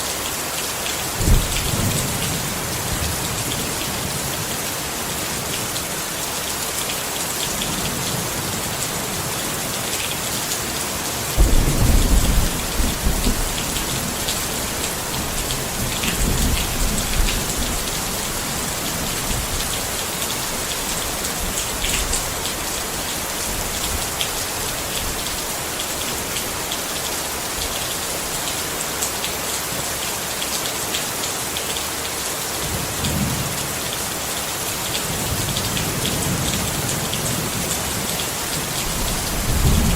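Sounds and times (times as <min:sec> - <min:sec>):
rain falling on a tent: 0:00.0 - 0:39.9
thunder rumbling: 0:01.2 - 0:03.4, 0:11.4 - 0:19.7, 0:38.8 - 0:39.9.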